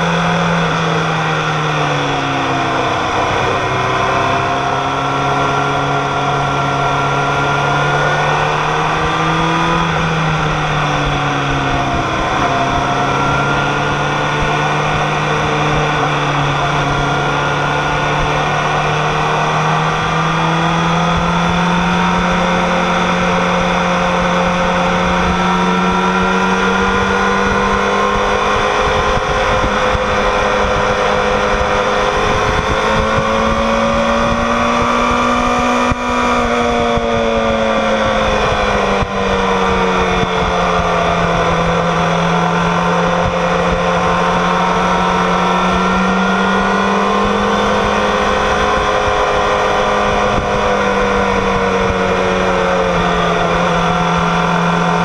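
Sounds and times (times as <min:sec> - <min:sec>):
motorcycle engine at high revs: 0:00.0 - 0:55.0
wind noise: 0:00.0 - 0:55.0.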